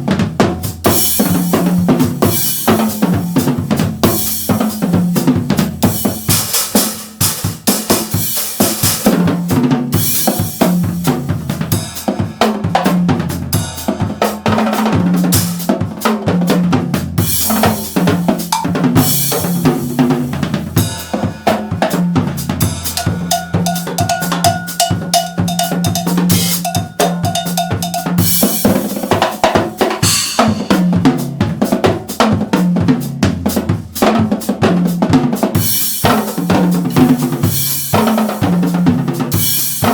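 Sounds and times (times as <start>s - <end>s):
drum kit groove: 0.0s - 39.9s
quick bell-like strikes: 18.5s - 19.2s, 22.9s - 29.0s, 30.1s - 31.0s
cymbal crashes: 22.8s - 29.0s, 30.0s - 31.0s.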